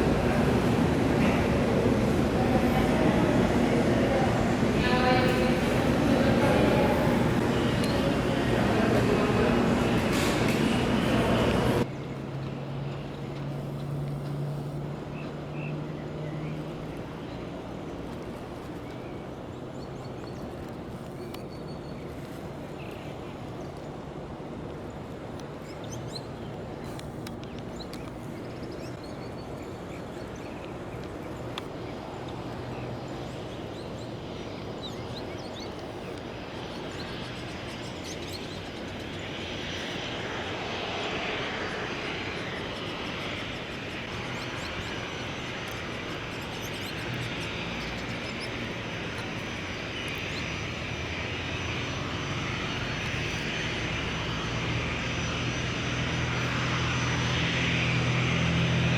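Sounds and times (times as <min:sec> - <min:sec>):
jet engines whining: 0:00.0 - 0:15.1, 0:22.2 - 0:58.9.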